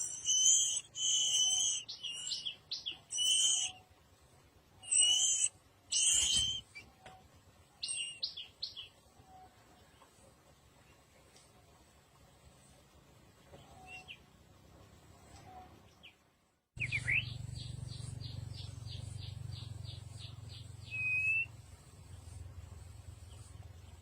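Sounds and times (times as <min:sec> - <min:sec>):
loud rising bird whistle: 0:00.0 - 0:03.8, 0:04.8 - 0:06.6, 0:20.8 - 0:21.5
bird chirps: 0:00.0 - 0:03.9, 0:04.8 - 0:07.2, 0:07.8 - 0:09.5, 0:16.8 - 0:22.4.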